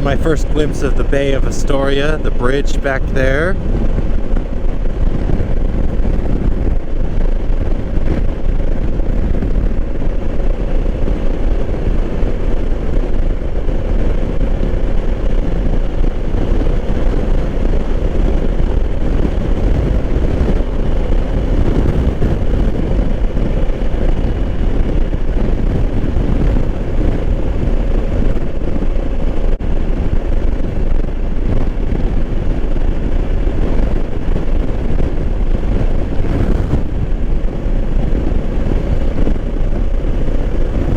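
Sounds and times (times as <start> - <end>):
motorcycle engine hum: 0.0 - 40.9
riding wind rushing: 0.0 - 40.9.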